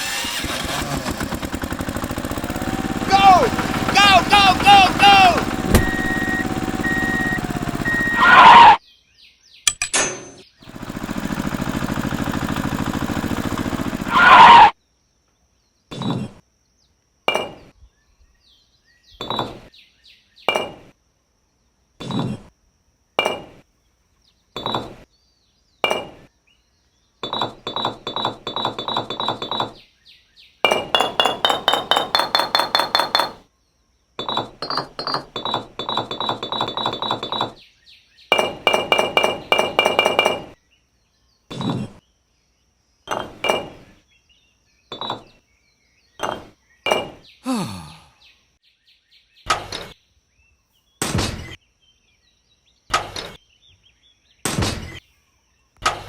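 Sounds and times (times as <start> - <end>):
hard objects clinking and tapping: 30.7 - 33.4, 34.2 - 37.6
rapid ringing strikes: 30.8 - 33.4.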